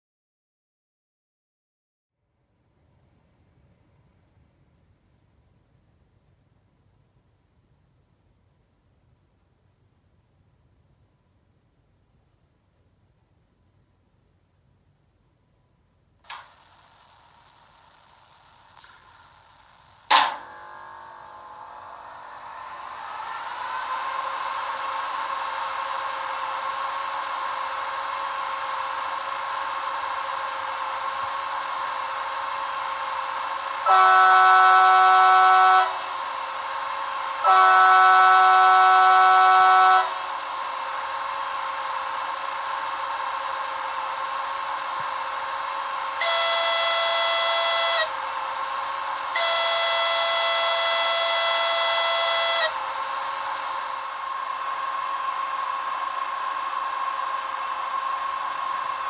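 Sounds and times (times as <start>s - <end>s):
steady machinery hum: 3.2s - 59.0s
locomotive horn blasts: 33.8s - 36.1s, 37.4s - 40.3s, 46.2s - 48.1s, 49.3s - 52.8s.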